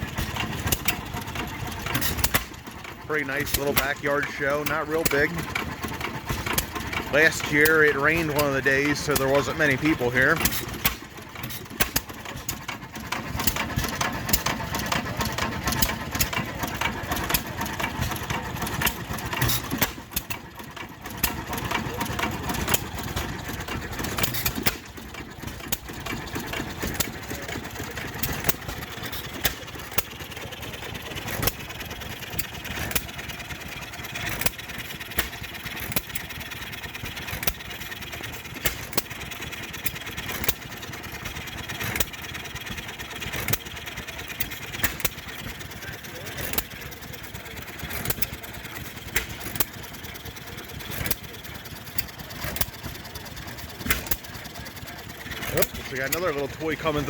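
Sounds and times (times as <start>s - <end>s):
engines running: 0.0s - 57.0s
sharp irregular pops: 3.2s - 14.6s.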